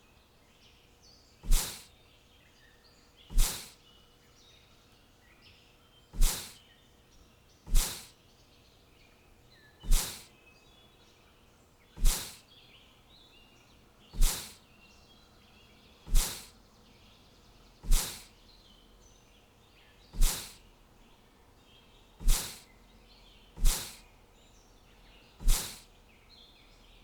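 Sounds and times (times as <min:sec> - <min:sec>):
faint bird chirps: 0:00.0 - 0:27.0
sharp swish sound effect: 0:01.5 - 0:01.9, 0:03.3 - 0:03.8, 0:06.2 - 0:06.6, 0:07.7 - 0:08.1, 0:09.9 - 0:10.3, 0:12.0 - 0:12.4, 0:14.2 - 0:14.6, 0:16.1 - 0:16.5, 0:17.8 - 0:18.3, 0:20.2 - 0:20.6, 0:22.2 - 0:22.6, 0:23.6 - 0:24.0, 0:25.4 - 0:25.8.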